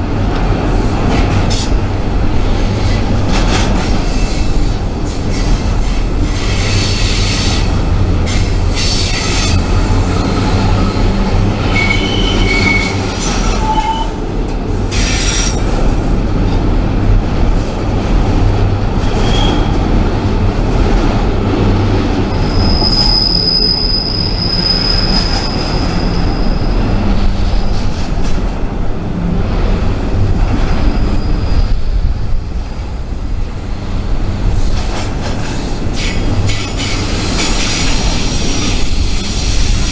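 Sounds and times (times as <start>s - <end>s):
freight train rumble: 0.0s - 39.9s
train wheels squealing: 2.7s - 14.2s, 14.9s - 15.8s, 19.1s - 19.9s, 22.2s - 27.6s, 30.5s - 32.0s, 34.6s - 39.9s.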